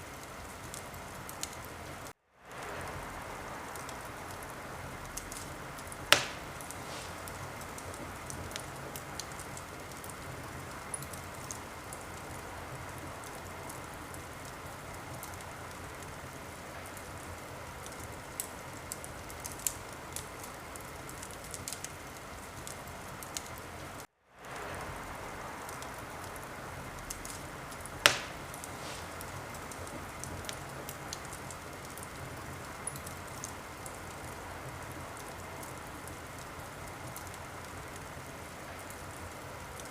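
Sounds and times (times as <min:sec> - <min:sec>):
wood fire crackling: 0:00.0 - 0:39.9
loud sharp pops: 0:06.1 - 0:08.0, 0:27.2 - 0:30.4.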